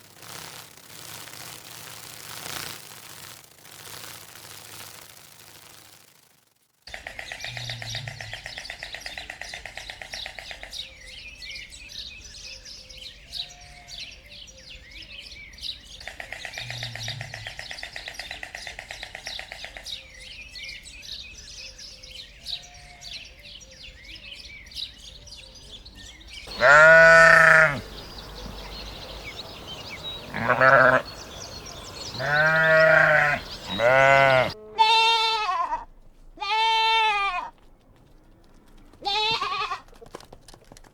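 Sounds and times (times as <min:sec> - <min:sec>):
rapid pulsing chatter: 0:26.5 - 0:34.5
livestock bleating: 0:26.5 - 0:37.6, 0:39.0 - 0:39.9.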